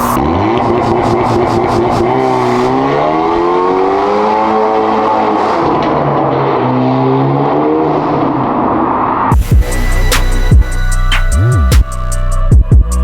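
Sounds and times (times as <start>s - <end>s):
car engine accelerating hard: 0.0s - 9.3s.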